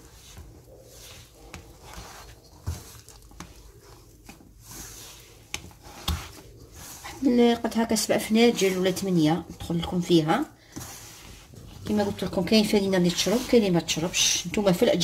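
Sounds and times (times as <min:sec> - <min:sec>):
hand squishing dough: 0:00.0 - 0:15.0.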